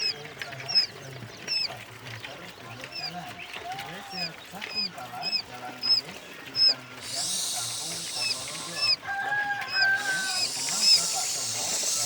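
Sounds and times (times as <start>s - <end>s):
quail chicks peeping: 0.0s - 12.0s
steady hiss: 7.0s - 9.0s, 10.0s - 12.0s.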